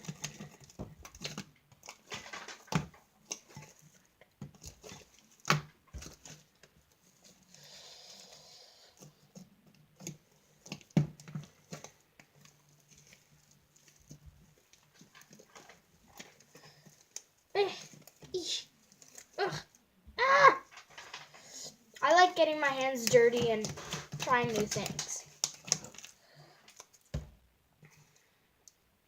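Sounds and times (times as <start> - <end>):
slime squelching and clicking: 22.0 - 27.2.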